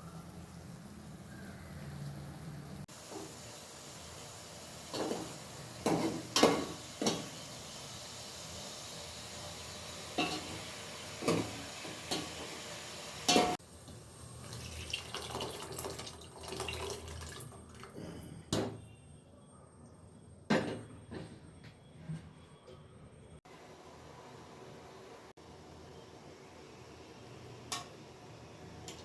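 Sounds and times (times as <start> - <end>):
utensils and cookware clinking: 4.9 - 7.4, 10.1 - 12.6, 13.2 - 13.6.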